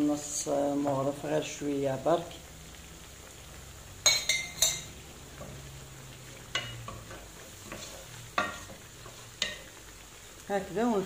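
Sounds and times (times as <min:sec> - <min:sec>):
vegetables sizzling in hot oil: 0:00.0 - 0:11.0
wooden spoon knocking pan: 0:06.5 - 0:09.7.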